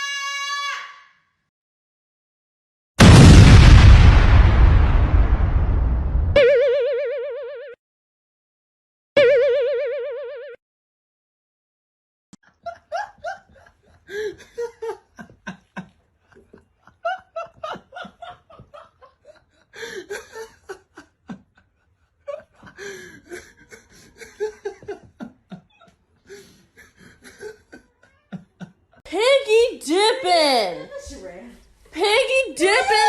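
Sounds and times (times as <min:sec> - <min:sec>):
person laughing hard: 0:12.7 - 0:29.0.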